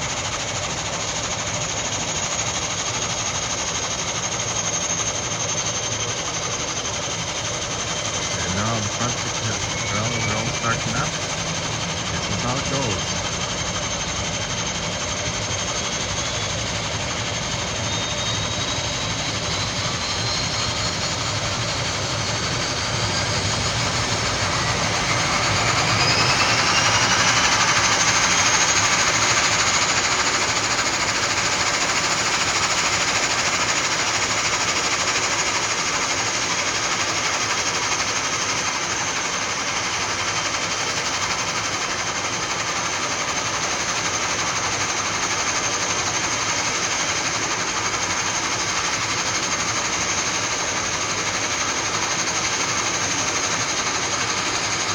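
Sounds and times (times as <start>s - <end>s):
turbine whine: 0.0s - 54.9s
turboprop engines roaring: 0.0s - 54.9s.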